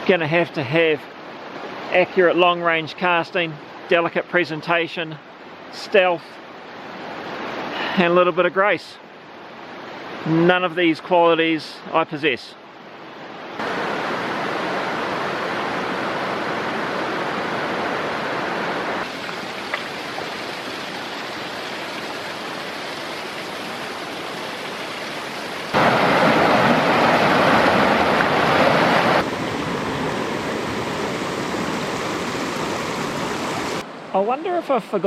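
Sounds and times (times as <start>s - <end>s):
stream flowing over rocks: 12.8s - 34.2s.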